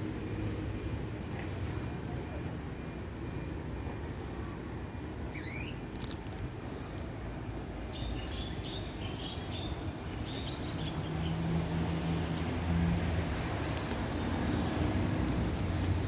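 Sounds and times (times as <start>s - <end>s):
small bird chirping: 5.3s - 5.8s.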